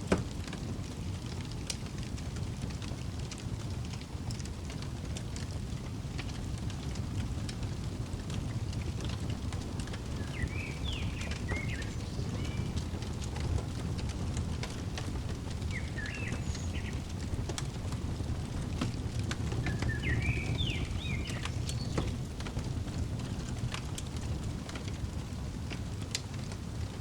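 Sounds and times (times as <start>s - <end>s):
fireplace crackling and popping: 0.0s - 27.0s
bird chirping: 9.4s - 22.2s.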